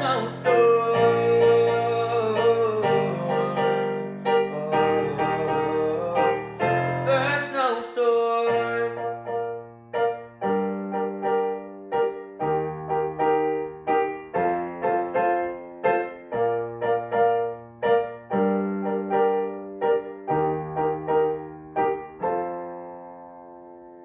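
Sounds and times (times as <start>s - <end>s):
solo piano melody: 0.0s - 24.0s.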